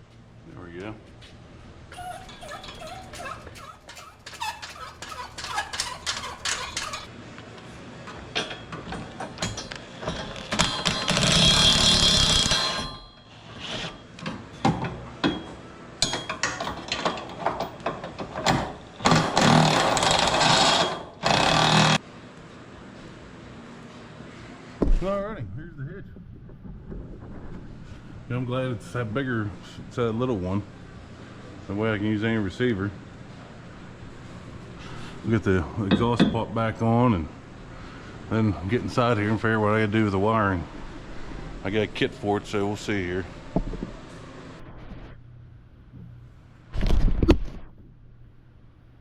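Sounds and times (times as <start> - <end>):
metal tools clicking and clattering: 2.3 - 7.1, 15.2 - 19.2
power tool bursts: 10.6 - 12.9, 19.0 - 22.0.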